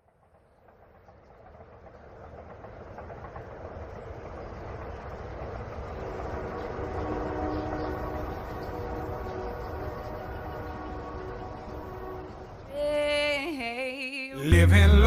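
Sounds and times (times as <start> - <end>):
train rumble and rail clatter: 0.0 - 14.0
train horn: 6.0 - 12.7.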